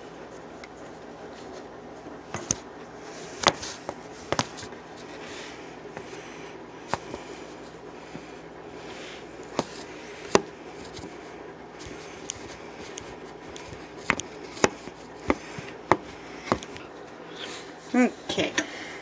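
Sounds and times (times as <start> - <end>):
faint background hum: 0.0 - 19.0
knife cutting on a cutting board: 9.4 - 11.1, 11.8 - 16.9.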